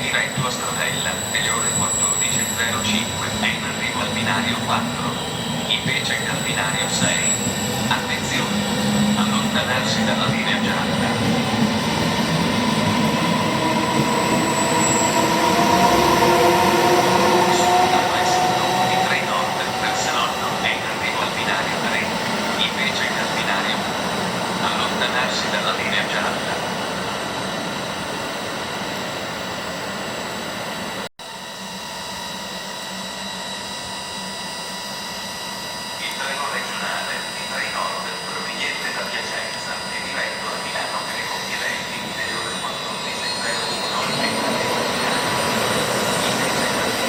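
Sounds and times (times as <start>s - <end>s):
train wheels rumbling on rails: 0.0s - 27.2s
high squeal: 0.0s - 47.0s
whining motor tones: 0.0s - 47.0s.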